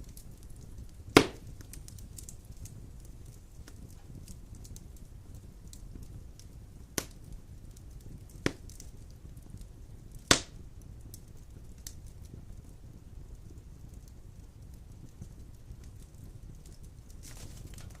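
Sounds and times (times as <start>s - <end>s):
faint wood crackles: 0.0s - 18.0s
fire rumbling in fireplace: 0.0s - 18.0s
sharp pops from logs: 1.2s - 1.5s, 7.0s - 7.2s, 8.4s - 8.8s, 10.3s - 10.6s.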